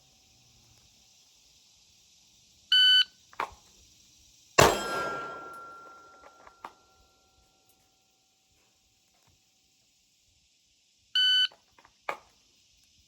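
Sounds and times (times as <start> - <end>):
pistol shot with echo: 4.6 - 6.4.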